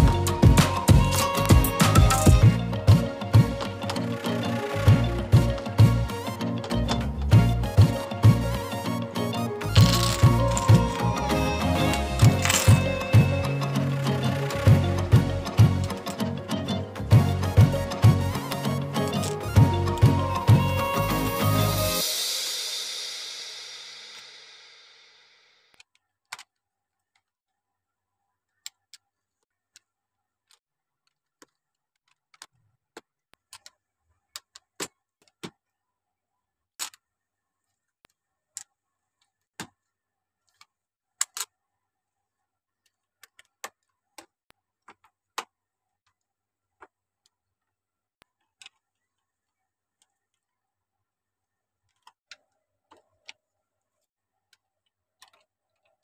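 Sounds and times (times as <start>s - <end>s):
plastic bricks clicking together: 9.8s - 11.0s.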